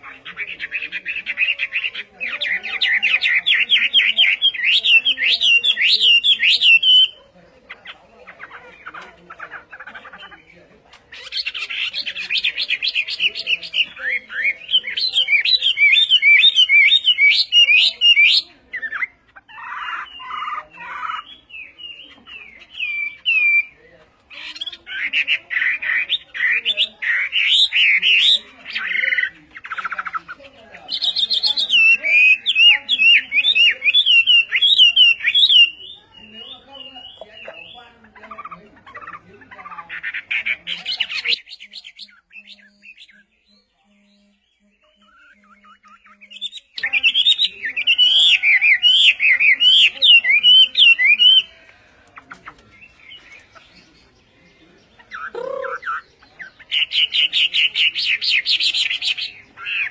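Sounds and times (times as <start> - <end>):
songbird singing trills: 0.0 - 59.9.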